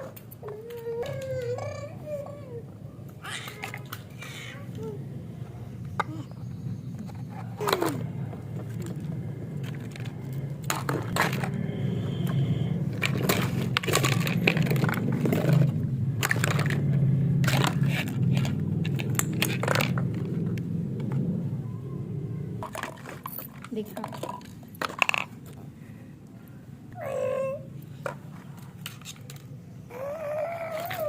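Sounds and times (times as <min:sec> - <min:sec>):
steady low hum: 0:01.5 - 0:27.0
plastic pieces clicking and clattering: 0:07.0 - 0:20.6, 0:22.6 - 0:25.6.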